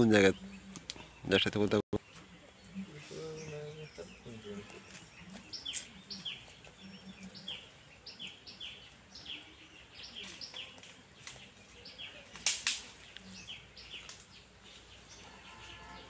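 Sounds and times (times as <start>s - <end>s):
small birds chirping: 0.0s - 16.0s
sharp clicks: 0.7s - 1.8s, 12.3s - 14.4s.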